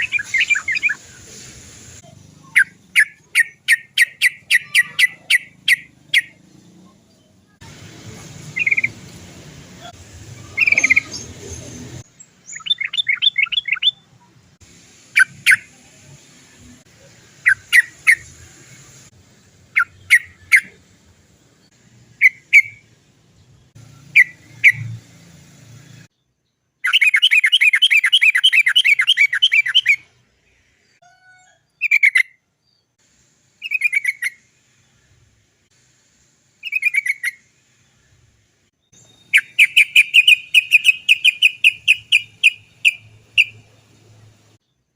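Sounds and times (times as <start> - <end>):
fast rolling bird trills: 0.0 - 1.2, 2.0 - 6.4, 8.4 - 9.0, 9.8 - 14.0, 26.8 - 30.1, 33.6 - 34.4, 36.6 - 37.6, 38.9 - 44.5
bulbul singing bubbly phrases: 2.2 - 7.7.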